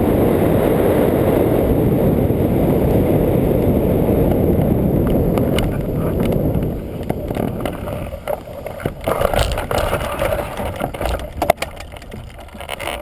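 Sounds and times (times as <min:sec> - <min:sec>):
wind rushing over microphone: 0:00.0 - 0:13.0
knocks and rustles: 0:05.4 - 0:13.0.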